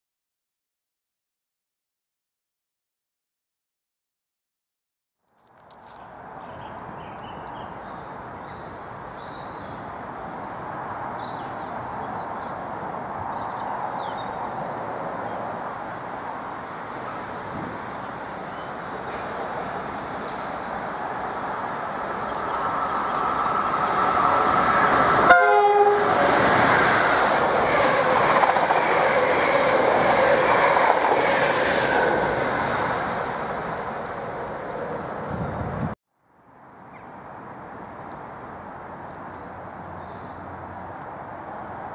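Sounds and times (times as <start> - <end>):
passenger train passing: 7.9 - 36.0
train horn blast: 25.2 - 26.2.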